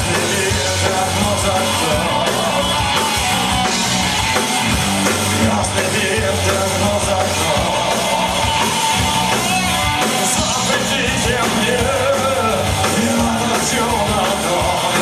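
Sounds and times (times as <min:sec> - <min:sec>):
person singing: 0:00.0 - 0:03.2, 0:10.4 - 0:15.0
electric guitar: 0:00.0 - 0:15.0
punk rock band playing live: 0:00.0 - 0:15.0.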